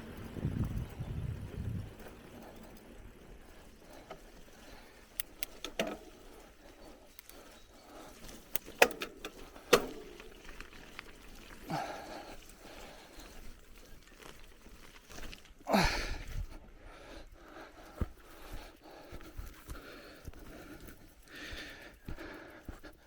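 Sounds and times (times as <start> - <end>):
bicycle rattling and knocking: 0.0 - 15.4
tyres rolling on trail: 0.0 - 23.0.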